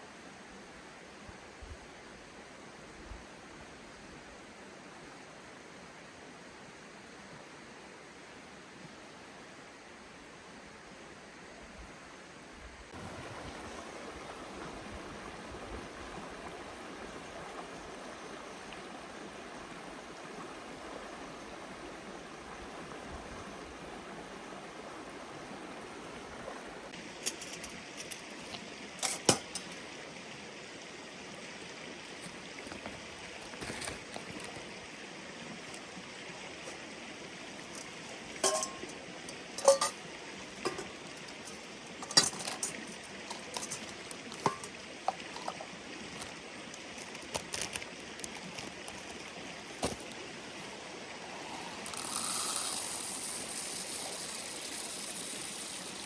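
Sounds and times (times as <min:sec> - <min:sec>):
river flowing: 0:00.0 - 0:56.0
clinks of small hard objects: 0:37.7 - 0:40.0, 0:40.6 - 0:45.6, 0:51.8 - 0:56.0.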